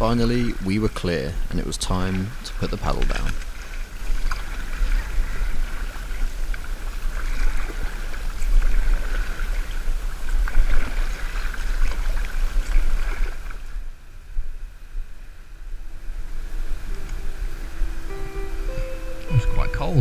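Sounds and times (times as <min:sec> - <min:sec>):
paddles splashing through water: 0:00.0 - 0:13.9
wind rumbling on microphone: 0:00.0 - 0:18.9.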